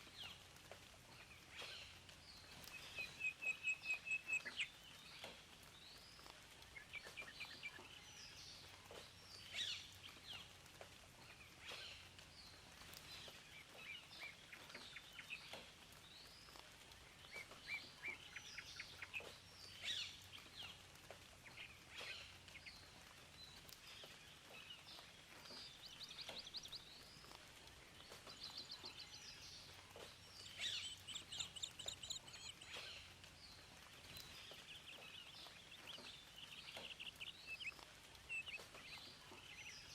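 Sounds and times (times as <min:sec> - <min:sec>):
faint steady hiss: 0:00.0 - 0:39.9
songbirds chirping and singing: 0:00.0 - 0:39.9.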